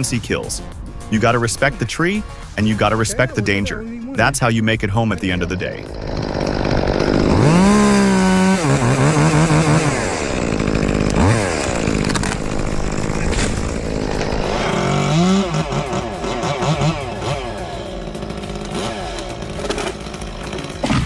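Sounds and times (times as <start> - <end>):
chainsaw revving and cutting: 5.1 - 21.0.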